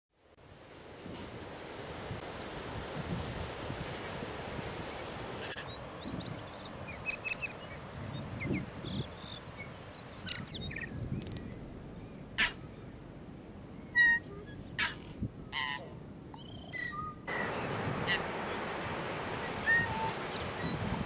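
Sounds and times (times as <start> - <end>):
wind on microphone: 2.0 - 12.7, 16.8 - 21.0
birds chirping: 5.0 - 13.0
surf: 17.3 - 21.0.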